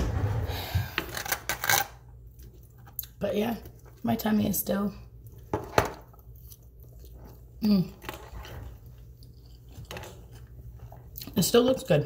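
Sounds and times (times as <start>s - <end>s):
person chewing: 5.2s - 11.4s.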